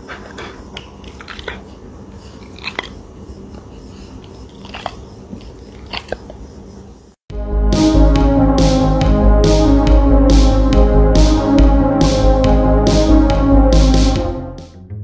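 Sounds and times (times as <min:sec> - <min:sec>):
loud electronic music: 0:07.3 - 0:14.8.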